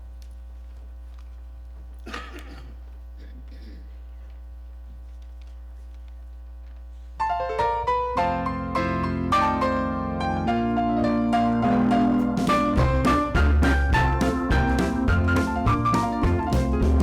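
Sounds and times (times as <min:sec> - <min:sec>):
piano playing ringing notes: 0:07.2 - 0:17.0
steady low hum: 0:07.9 - 0:17.0.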